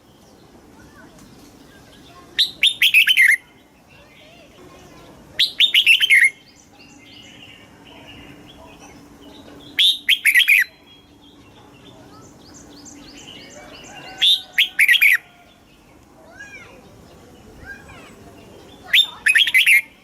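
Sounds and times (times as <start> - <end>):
faint bird chirps: 0.9 - 20.0
bird singing whistled phrases: 2.3 - 3.6, 5.4 - 8.4, 9.6 - 11.2, 12.4 - 15.2, 18.7 - 20.0.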